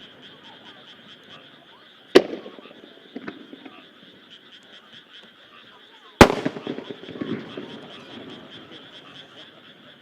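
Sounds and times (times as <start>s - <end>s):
frogs chorus: 0.0s - 10.0s
firework shells bursting: 2.1s - 3.8s, 6.2s - 8.4s.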